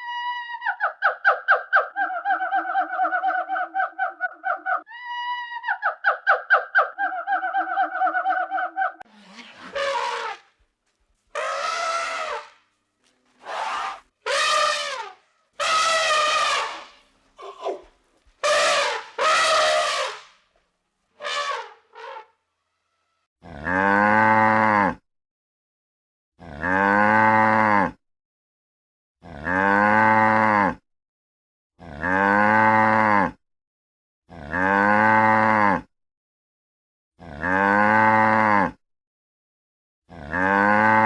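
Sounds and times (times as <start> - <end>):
high-pitched animal calls: 11.4 - 12.6, 13.4 - 20.2
cow mooing: 23.4 - 25.0, 26.4 - 28.0, 29.2 - 30.8, 31.8 - 33.4, 34.3 - 35.9, 37.2 - 38.8, 40.1 - 41.0.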